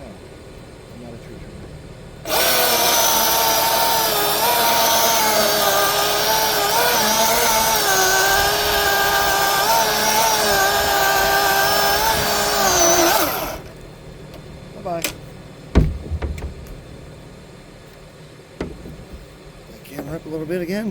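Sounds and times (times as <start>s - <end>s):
electric chainsaw cutting wood: 2.2s - 13.8s.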